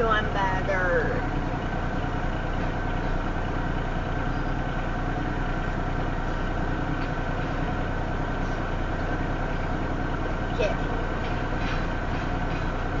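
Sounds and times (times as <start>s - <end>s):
locomotive engines droning: 0.0s - 13.0s.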